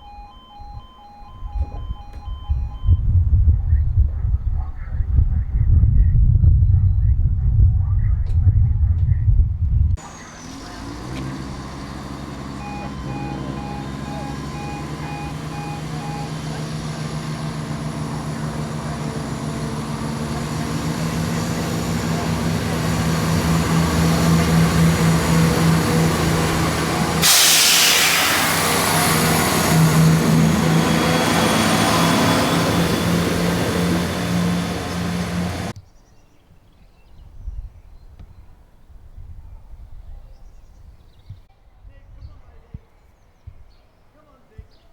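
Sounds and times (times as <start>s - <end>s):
diesel train engine throb: 7.6s - 35.8s
rush of wheel and air noise: 8.4s - 35.8s.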